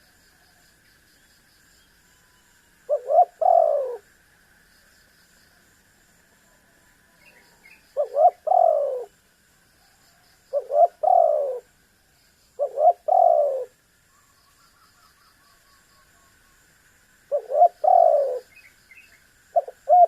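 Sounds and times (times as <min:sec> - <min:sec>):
small birds chirping: 0:01.2 - 0:04.0, 0:07.2 - 0:09.2, 0:09.8 - 0:16.5, 0:17.3 - 0:20.0
dove cooing: 0:02.9 - 0:04.0, 0:07.5 - 0:09.1, 0:10.5 - 0:11.7, 0:12.6 - 0:13.7, 0:17.3 - 0:18.5, 0:19.6 - 0:20.0.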